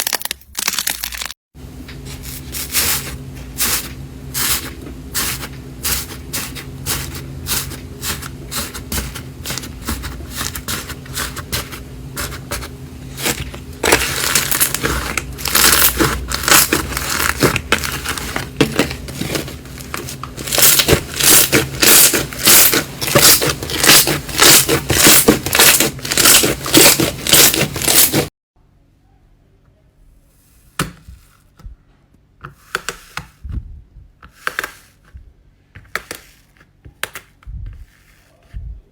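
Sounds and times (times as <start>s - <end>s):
slime crackling and popping: 0.0s - 1.3s
slime squishing: 2.1s - 28.3s.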